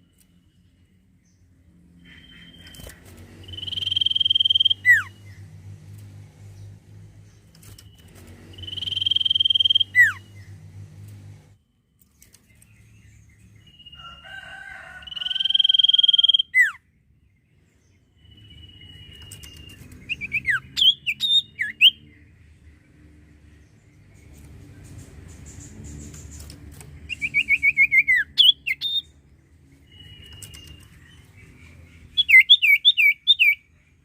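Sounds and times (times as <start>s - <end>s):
bird singing whistles and chirps: 2.1s - 5.4s, 7.6s - 10.5s, 15.1s - 16.8s, 18.2s - 22.1s, 27.0s - 29.1s, 29.8s - 31.3s, 32.1s - 33.7s.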